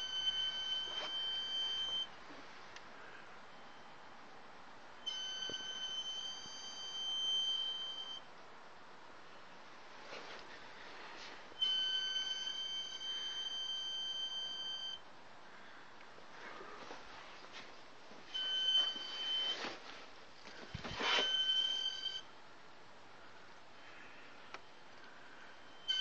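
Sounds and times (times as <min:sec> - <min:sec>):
high-pitched steady tone: 0:00.0 - 0:02.2, 0:05.0 - 0:08.3, 0:11.6 - 0:15.1, 0:20.6 - 0:22.3.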